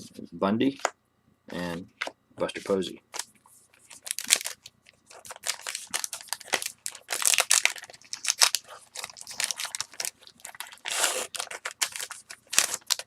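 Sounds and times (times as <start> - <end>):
wrapper tearing and crinkling: 3.9 - 13.0.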